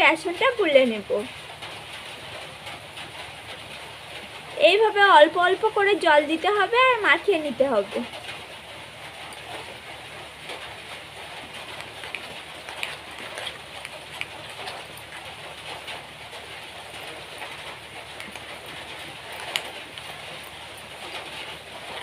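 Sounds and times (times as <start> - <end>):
rain hissing: 0.0 - 22.0
fingers mixing wet batter: 9.0 - 21.8.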